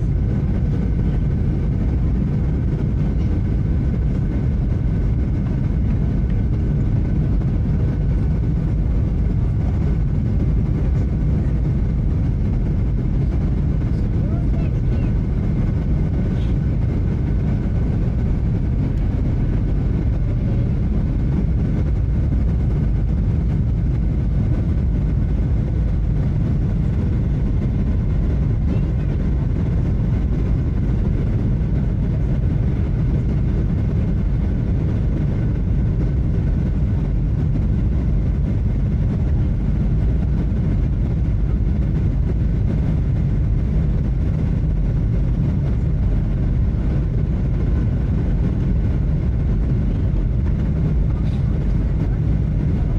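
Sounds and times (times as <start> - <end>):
airplane cabin engine rumble: 0.0 - 52.9.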